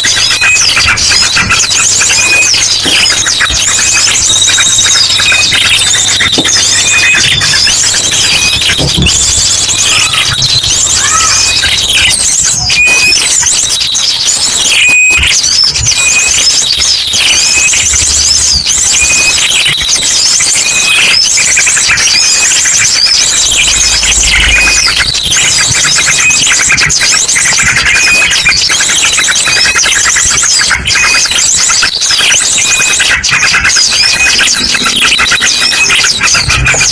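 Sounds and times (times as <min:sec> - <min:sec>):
bird whistled call phrases: 0:00.0 - 0:36.9
chorus of small birds chirping: 0:00.0 - 0:36.9.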